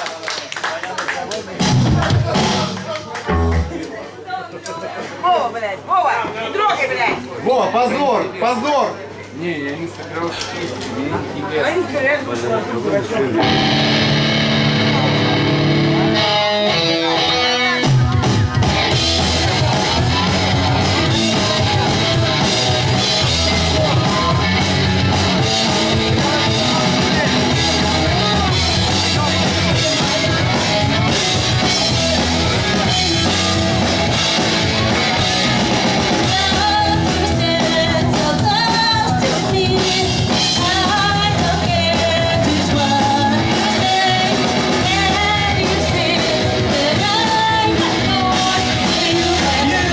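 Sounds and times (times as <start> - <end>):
pop-punk band playing live: 1.6 - 3.8, 13.4 - 49.9
person singing: 17.0 - 49.9.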